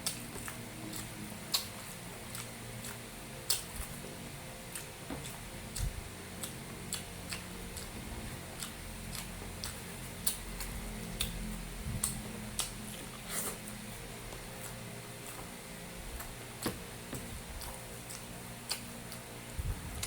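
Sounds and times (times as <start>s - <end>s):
wet chewing and mouth clicks: 0.0s - 4.0s, 4.6s - 15.5s, 16.2s - 19.3s
faint steady hum: 0.0s - 20.0s.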